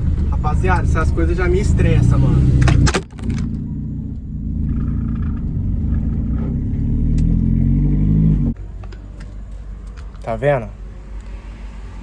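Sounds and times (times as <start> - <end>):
vehicle engine and road drone: 0.0 - 12.0.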